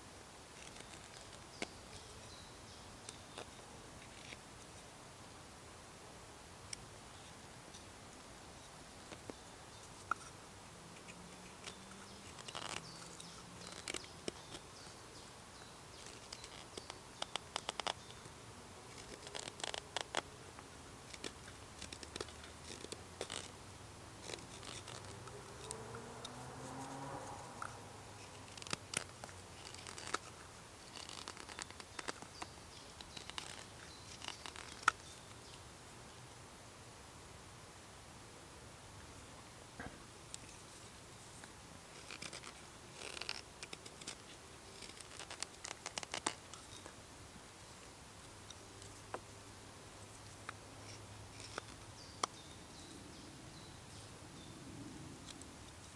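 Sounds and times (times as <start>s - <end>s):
small clicks taps and scrapes: 16.0s - 18.3s, 18.9s - 20.3s, 28.3s - 35.1s.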